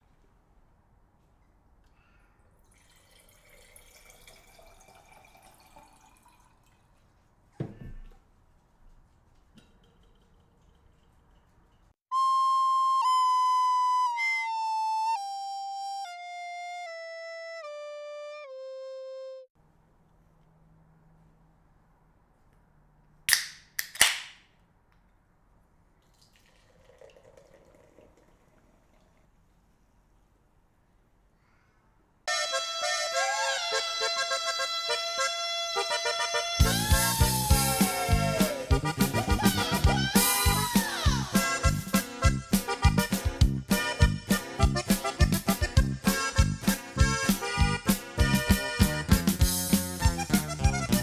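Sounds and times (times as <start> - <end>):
liquid pouring into glass: 2.6 - 7.0, 26.0 - 29.4.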